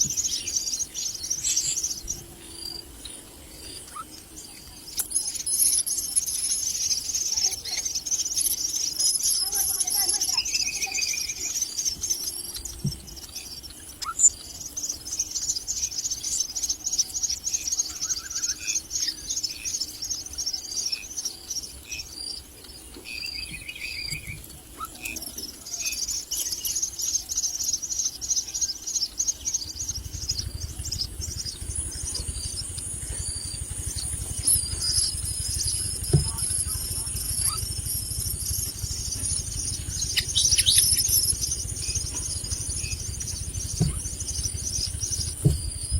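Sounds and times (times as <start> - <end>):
bird chicks chirping: 0.0 - 45.9
low bird calls: 0.0 - 45.9
low rumble: 29.7 - 45.9.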